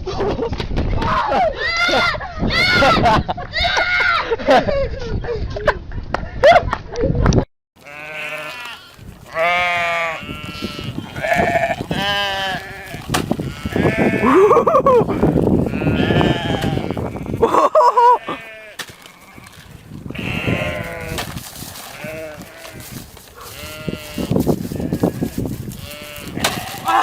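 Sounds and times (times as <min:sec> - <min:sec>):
animal bleating: 0:07.8 - 0:27.0.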